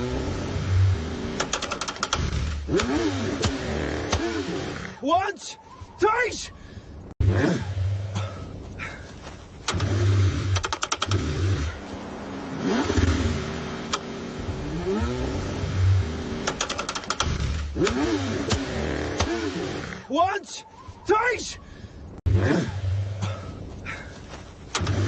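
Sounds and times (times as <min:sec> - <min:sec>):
car engine cranking: 0:00.0 - 0:05.0, 0:09.5 - 0:20.1, 0:24.6 - 0:25.0
rapid clicking: 0:01.4 - 0:04.2, 0:09.6 - 0:11.2, 0:16.4 - 0:18.6.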